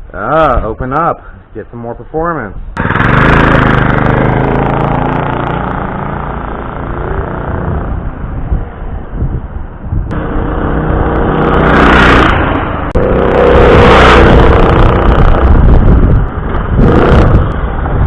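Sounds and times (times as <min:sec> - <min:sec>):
mini bike engine revving: 0:02.8 - 0:08.0, 0:10.1 - 0:15.9, 0:16.5 - 0:17.7.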